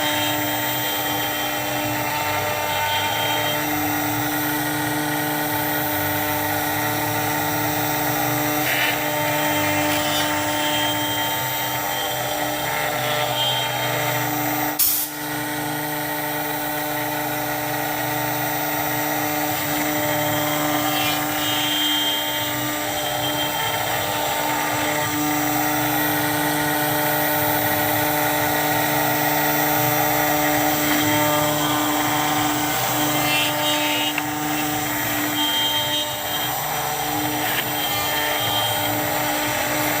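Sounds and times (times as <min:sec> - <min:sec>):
cutter milling plastic: 0:00.0 - 0:40.0
router spindle whine: 0:00.0 - 0:40.0.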